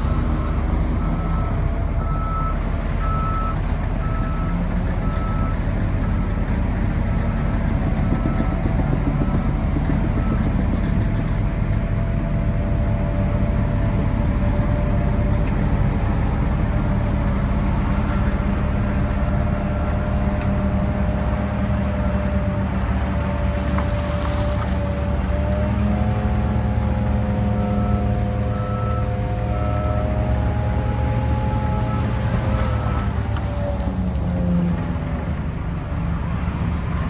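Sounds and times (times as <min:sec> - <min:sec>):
reversing alarm beeping: 0:00.0 - 0:06.4
bulldozer diesel engine: 0:00.0 - 0:37.0.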